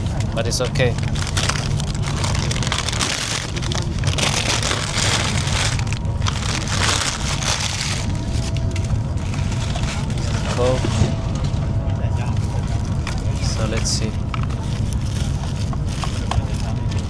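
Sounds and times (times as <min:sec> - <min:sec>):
train running at speed: 0:00.0 - 0:17.0
paper bag and wrappers rustling: 0:00.6 - 0:11.2.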